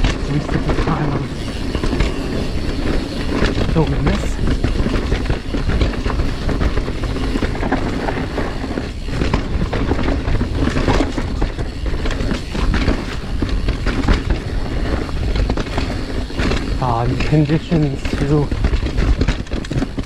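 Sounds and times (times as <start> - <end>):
bike rattling and knocking: 0.0 - 20.0
bike tyres on dirt trail: 0.0 - 20.0.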